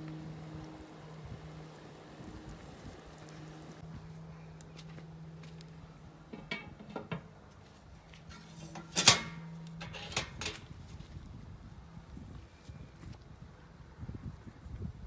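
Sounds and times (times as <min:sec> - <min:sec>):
utensils clinking on dishes: 0:08.3 - 0:10.6.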